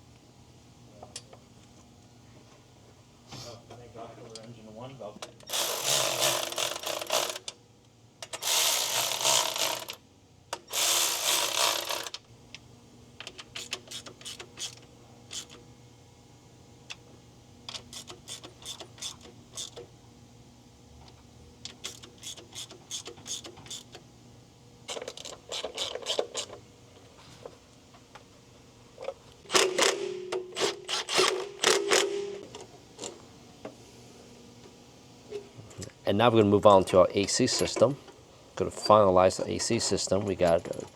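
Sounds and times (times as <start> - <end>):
ratchet clicking: 5.4 - 7.6, 8.2 - 10.0, 10.7 - 12.2.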